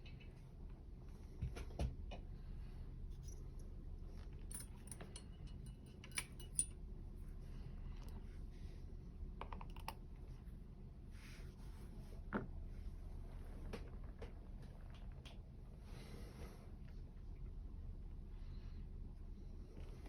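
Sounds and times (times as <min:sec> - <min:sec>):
low steady hum: 0:00.0 - 0:20.0
lock picking clicks: 0:04.5 - 0:06.8.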